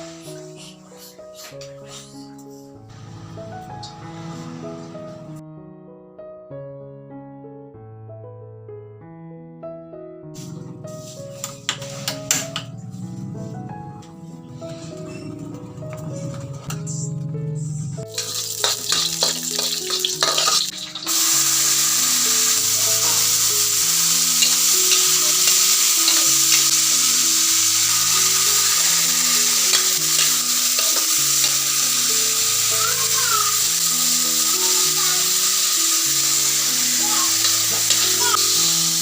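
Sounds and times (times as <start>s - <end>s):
food sizzling in a pan: 18.1s - 39.0s.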